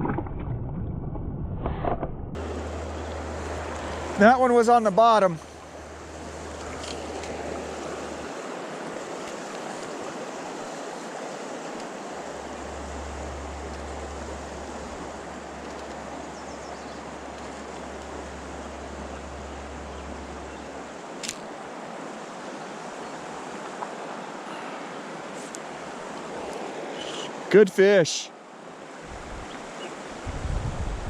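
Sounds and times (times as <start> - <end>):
river water rushing: 2.4 - 30.9.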